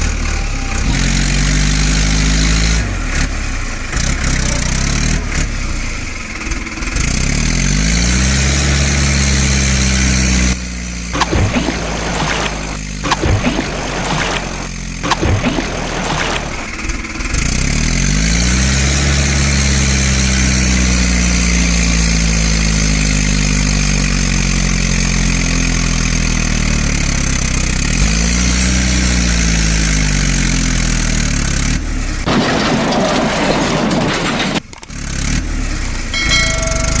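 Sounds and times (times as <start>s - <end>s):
tractor diesel engine revving: 0.0s - 37.0s
rough noisy sound: 11.1s - 17.6s.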